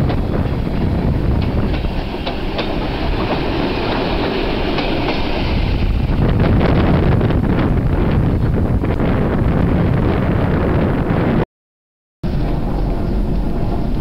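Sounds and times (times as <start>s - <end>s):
train rumbling past: 0.0s - 11.4s, 12.2s - 14.0s
wheels clicking over rail joints: 1.3s - 5.4s.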